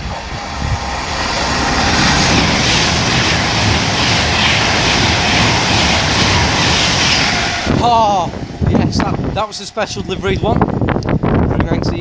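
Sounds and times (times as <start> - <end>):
electric train passing: 0.0 - 11.6.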